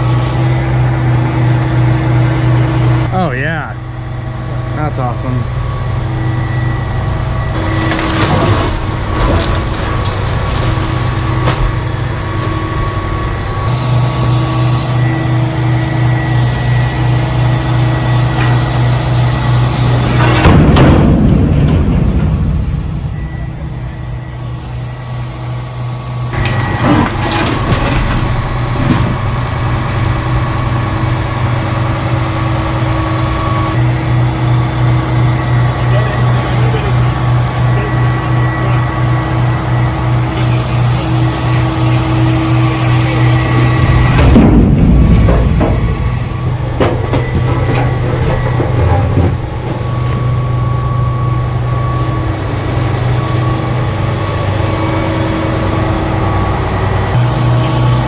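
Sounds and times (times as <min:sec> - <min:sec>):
diesel truck engine running: 0:00.0 - 0:58.0
hydraulic whine: 0:00.0 - 0:58.0
sharp knocks: 0:44.1 - 0:47.0.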